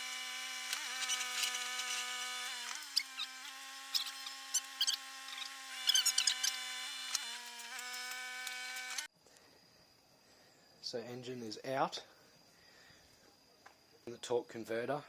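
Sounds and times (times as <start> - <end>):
short high squeaks and clicks: 0.7 - 9.1.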